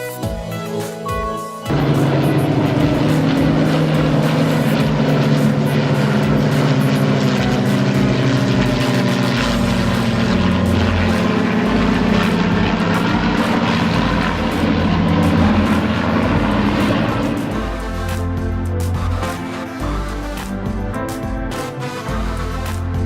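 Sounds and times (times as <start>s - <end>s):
propeller plane engine drone: 0.0s - 23.0s.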